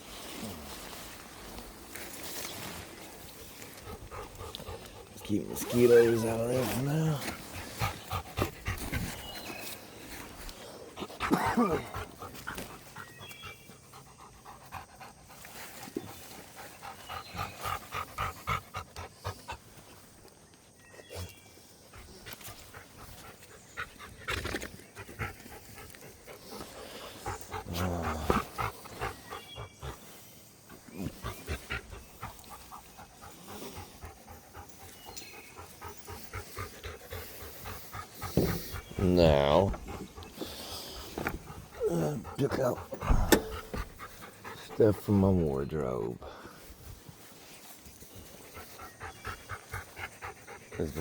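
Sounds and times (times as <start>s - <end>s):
dog panting: 3.2s - 20.4s, 21.4s - 51.0s.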